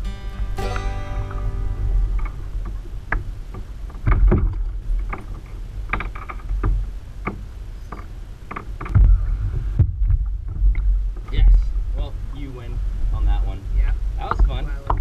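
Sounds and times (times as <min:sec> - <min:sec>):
wind rumble on microphone: 0:01.2 - 0:15.0
gear knocking against plastic kayak: 0:02.6 - 0:09.2.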